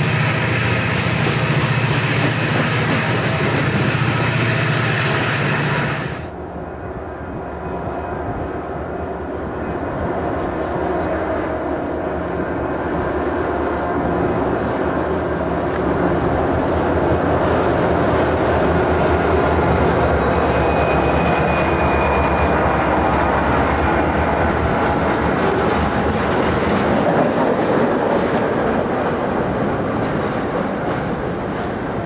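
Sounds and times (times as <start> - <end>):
diesel locomotives running: 0.0 - 32.0
freight cars rumbling on steel wheels: 14.0 - 32.0.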